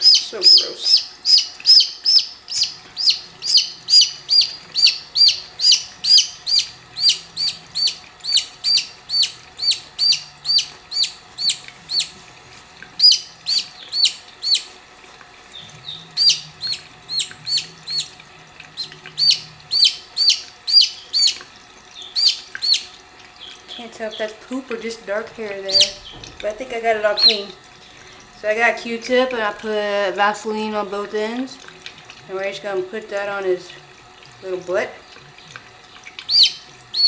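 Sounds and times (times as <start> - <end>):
chick peeping loudly: 0.0 - 12.1, 13.0 - 14.7, 15.6 - 18.1, 18.8 - 21.4, 22.0 - 23.5, 25.7 - 26.1, 36.3 - 37.0
faint faucet running: 0.0 - 37.0.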